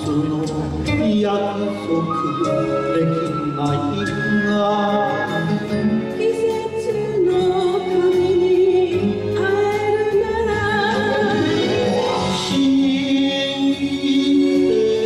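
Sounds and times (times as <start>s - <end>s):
karaoke backing track: 0.0s - 15.0s.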